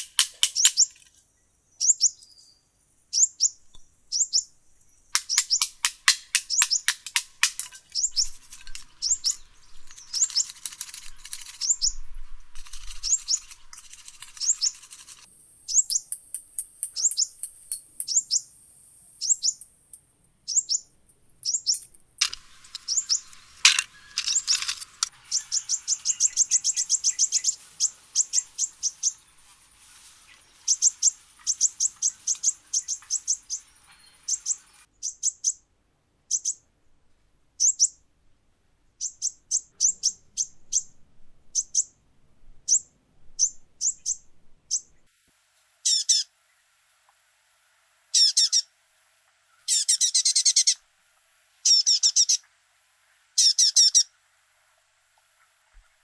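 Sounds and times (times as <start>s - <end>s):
steady hiss: 0.0s - 34.9s
small bird chirping: 0.0s - 35.6s, 36.3s - 36.6s, 37.6s - 38.0s, 38.9s - 40.9s, 41.5s - 42.0s, 42.6s - 45.0s, 45.8s - 46.3s, 48.1s - 48.7s, 49.6s - 50.8s, 51.6s - 52.4s, 53.4s - 54.1s.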